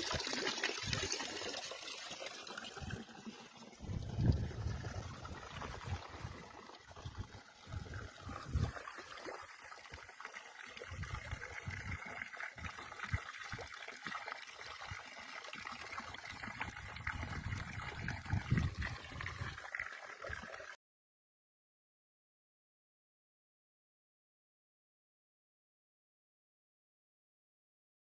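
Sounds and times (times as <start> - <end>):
stream water gurgling: 0.0 - 20.8.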